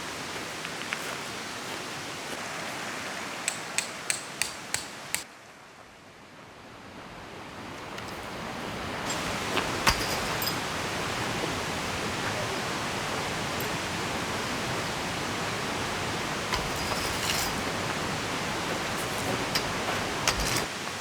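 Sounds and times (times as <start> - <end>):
river rushing: 0.0 - 5.3, 7.3 - 21.0
rain falling: 8.0 - 21.0.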